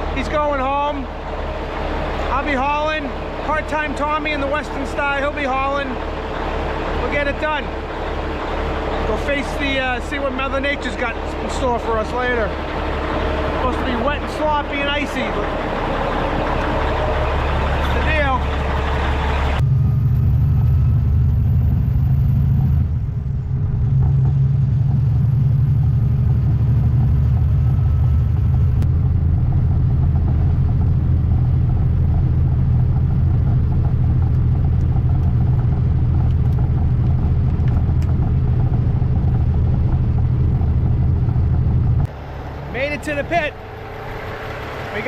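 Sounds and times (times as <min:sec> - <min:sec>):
diesel truck driving: 0:00.0 - 0:45.0.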